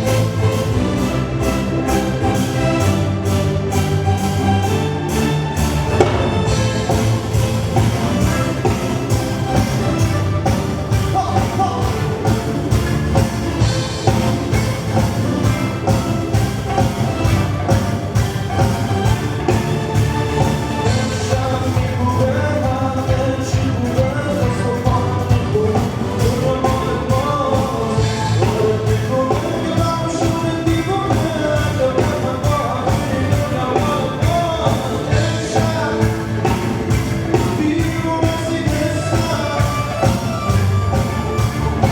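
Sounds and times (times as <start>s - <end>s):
bass: 0.0s - 41.9s
keyboard: 0.0s - 41.9s
steady drum beat: 0.0s - 41.9s
person singing: 20.8s - 41.9s.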